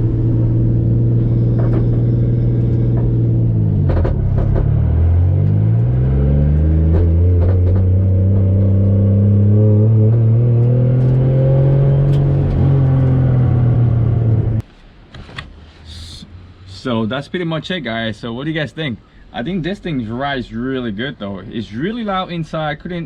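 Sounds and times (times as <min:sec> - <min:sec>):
car engine accelerating: 0:00.0 - 0:14.6.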